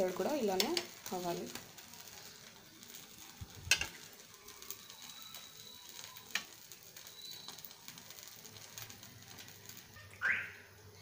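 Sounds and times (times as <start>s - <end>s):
faint sizzling in a frying pan: 0.0s - 11.0s.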